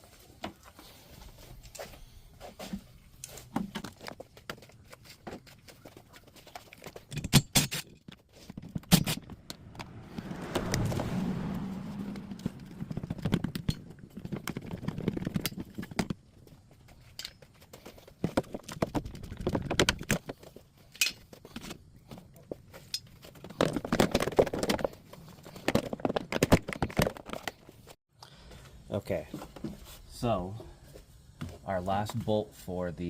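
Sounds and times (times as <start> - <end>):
plastic parts rattling: 22.8 - 27.7.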